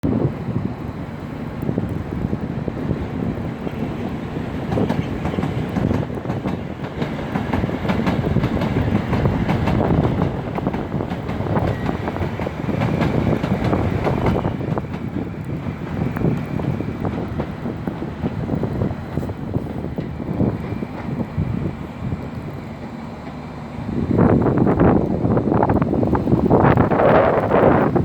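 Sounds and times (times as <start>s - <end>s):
wind on microphone: 0.0s - 22.7s, 23.8s - 28.0s
train wheels clicking on track: 0.1s - 28.0s.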